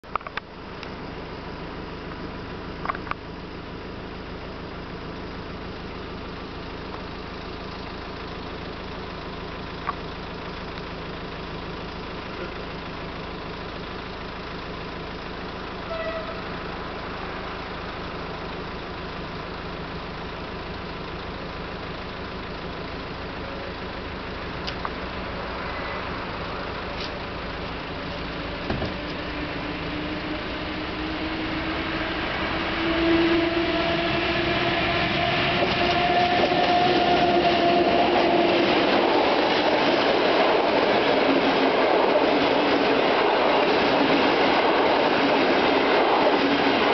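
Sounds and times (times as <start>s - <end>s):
electric train passing: 11.1s - 46.9s.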